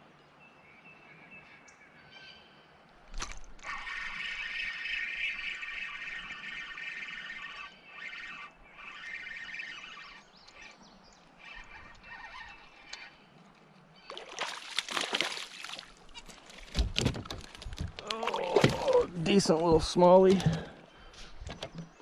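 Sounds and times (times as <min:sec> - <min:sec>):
fish splashing in water: 0:14.1 - 0:16.1.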